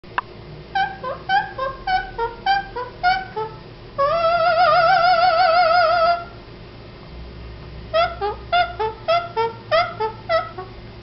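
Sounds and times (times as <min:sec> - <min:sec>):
pet bird singing: 0:00.8 - 0:06.2, 0:08.0 - 0:10.8.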